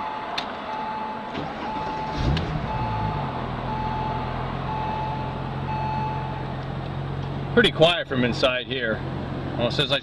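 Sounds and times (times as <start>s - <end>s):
seatbelt warning beeps: 0.0s - 6.4s
car engine starting and idling: 0.7s - 10.0s.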